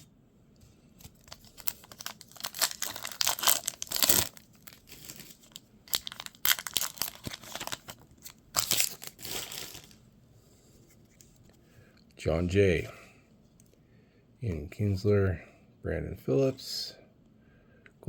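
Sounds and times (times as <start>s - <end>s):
plastic wrapper crinkling: 1.0s - 10.0s.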